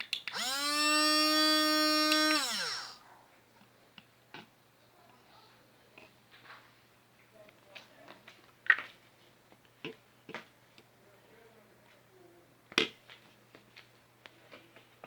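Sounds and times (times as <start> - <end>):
blender clicks and knocks: 0.1 - 3.0.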